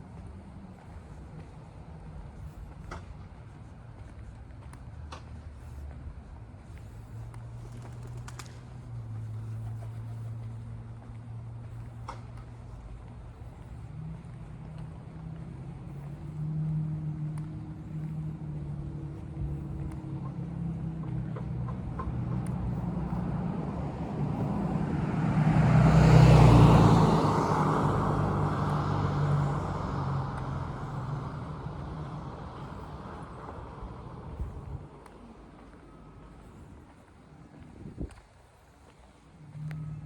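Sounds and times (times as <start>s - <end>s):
car driving past: 13.9s - 36.7s, 39.4s - 40.0s.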